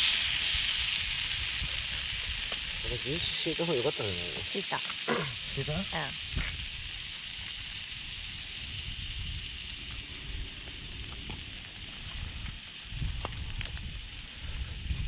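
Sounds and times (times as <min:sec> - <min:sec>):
campfire crackling: 0:00.0 - 0:15.0
meat sizzling on griddle: 0:00.0 - 0:15.0.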